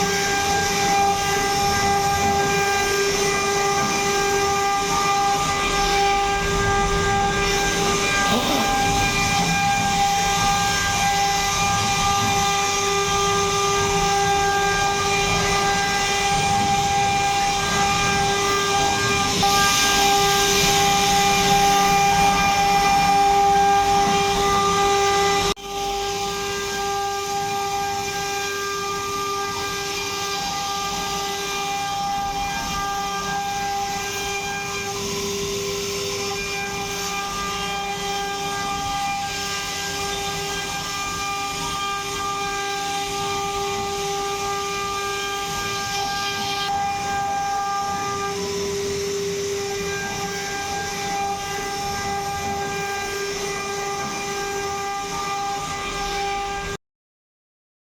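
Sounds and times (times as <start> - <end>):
router spindle whine: 0.0 - 56.8
cutting noise: 8.0 - 9.6.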